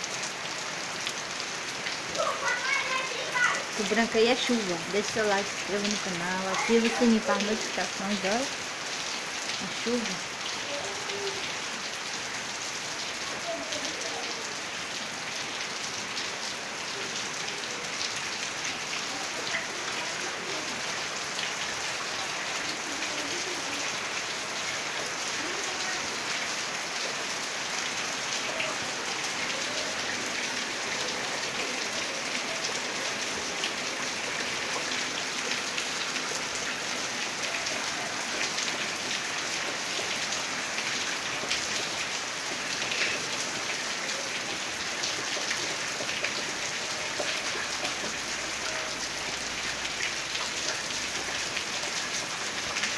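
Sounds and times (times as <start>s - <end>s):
heavy rain falling: 0.0s - 52.9s.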